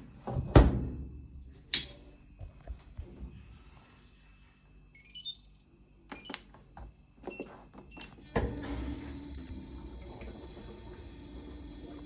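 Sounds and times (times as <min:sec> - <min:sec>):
washing machine hum and hiss: 0:08.1 - 0:12.0.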